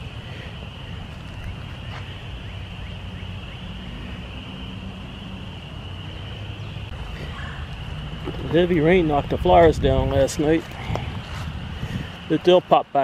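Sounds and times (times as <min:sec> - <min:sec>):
spring peepers calling: 0:00.0 - 0:13.0
wind rumble on microphone: 0:03.7 - 0:12.6.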